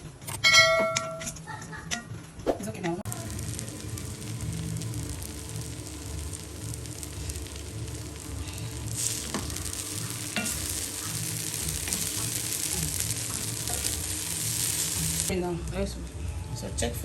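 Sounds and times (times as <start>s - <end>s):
food stirred in a pot: 3.1s - 15.3s.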